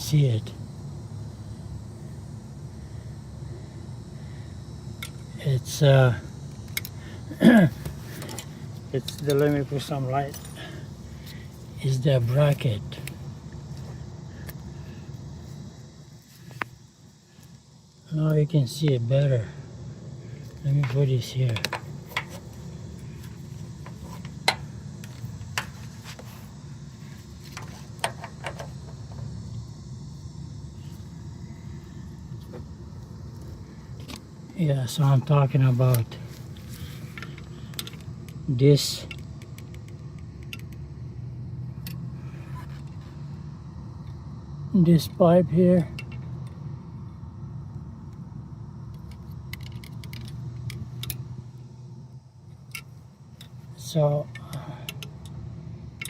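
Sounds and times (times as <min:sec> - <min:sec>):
steady low hum: 0:00.0 - 0:56.0
objects being handled and set down: 0:07.8 - 0:09.6, 0:23.2 - 0:26.5.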